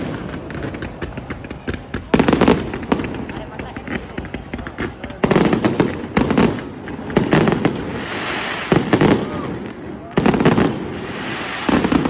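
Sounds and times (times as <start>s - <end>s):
crackling hiss: 0.0s - 12.0s
fireworks banging: 0.0s - 12.0s.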